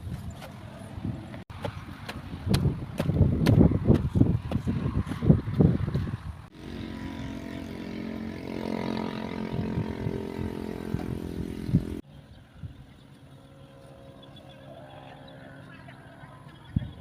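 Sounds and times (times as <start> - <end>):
small engine running: 6.5 - 12.0.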